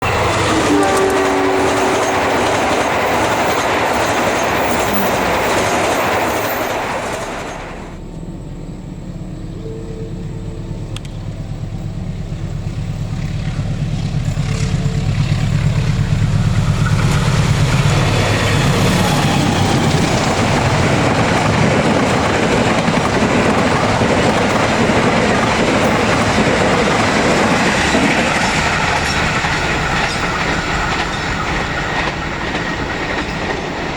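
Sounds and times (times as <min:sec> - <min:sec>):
wheels clattering over track: 0:00.0 - 0:08.1
train rolling on rails: 0:00.0 - 0:33.9.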